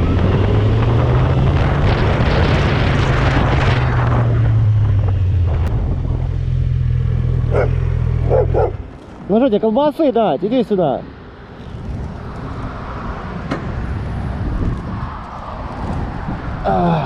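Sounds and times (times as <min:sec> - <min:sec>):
dog barking: 0:07.5 - 0:08.8.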